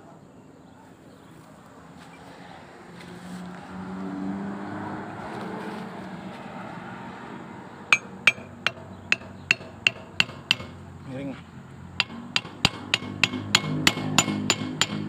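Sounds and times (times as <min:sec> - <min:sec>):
hammer striking metal: 0:07.9 - 0:10.8, 0:12.0 - 0:15.0.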